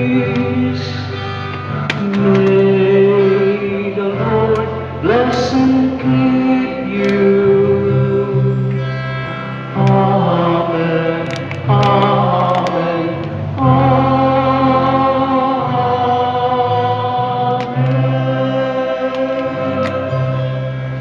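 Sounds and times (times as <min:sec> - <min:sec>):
held accompanying chords: 0:00.0 - 0:21.0
choir singing a hymn: 0:12.2 - 0:21.0.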